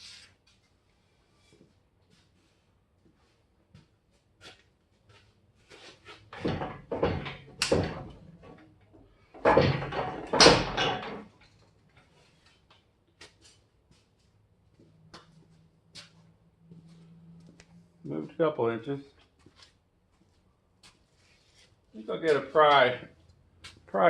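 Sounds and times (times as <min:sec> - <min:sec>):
metal scraping and knocking: 0:06.2 - 0:11.5.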